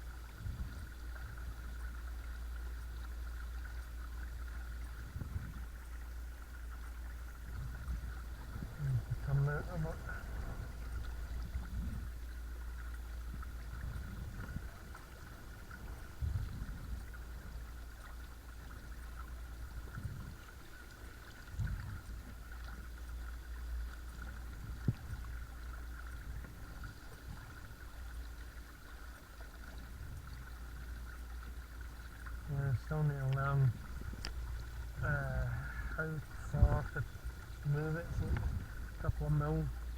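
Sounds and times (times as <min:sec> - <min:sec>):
rumble of water and wind: 0:00.0 - 0:39.9
dull low thumps: 0:32.7 - 0:39.4.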